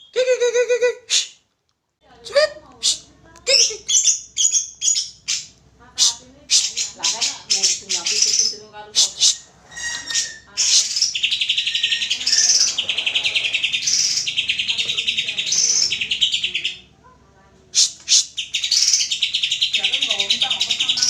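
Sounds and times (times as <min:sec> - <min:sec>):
bird song with rattling trills: 0:06.5 - 0:08.7, 0:09.7 - 0:16.8, 0:18.1 - 0:21.0.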